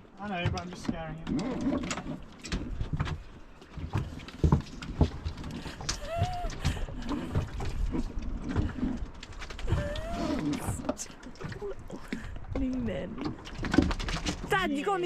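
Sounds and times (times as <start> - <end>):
small boat knocking: 0.3 - 14.6
dog whining: 5.9 - 6.8, 9.7 - 10.9.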